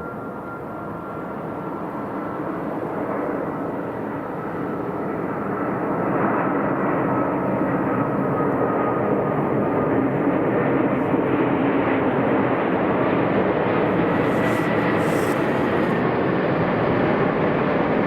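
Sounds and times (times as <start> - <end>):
faint high jet whine: 0.0 - 17.7
jet airliner landing rush: 0.0 - 18.0.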